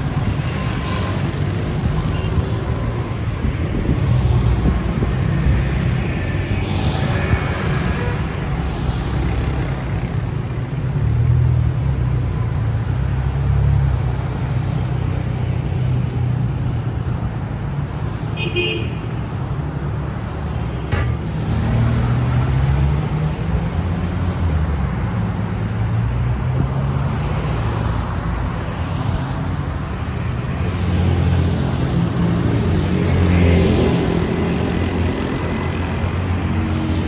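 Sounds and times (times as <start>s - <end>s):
cars passing close by: 0.0s - 16.7s, 19.3s - 37.0s
traffic rumble: 0.0s - 37.0s.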